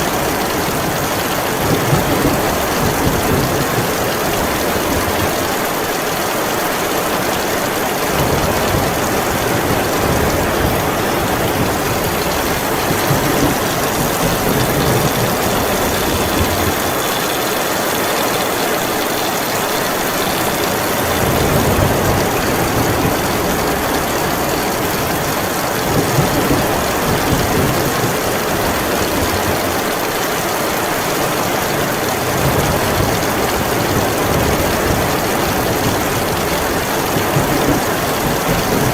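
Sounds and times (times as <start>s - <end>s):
heavy rain falling: 0.0s - 38.9s
low rumble of wind or thunder: 8.1s - 17.4s.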